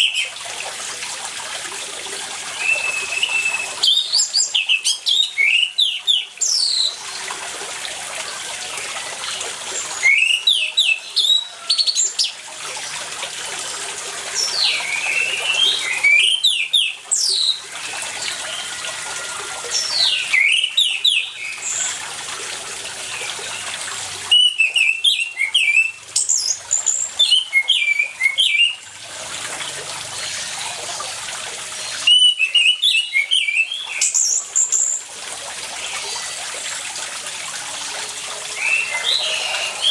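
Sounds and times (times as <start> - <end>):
running water: 0.0 - 39.9
thrush singing whistled phrases: 2.5 - 7.0, 10.0 - 12.4, 14.4 - 21.9, 24.3 - 28.8, 31.8 - 35.0, 38.5 - 39.9.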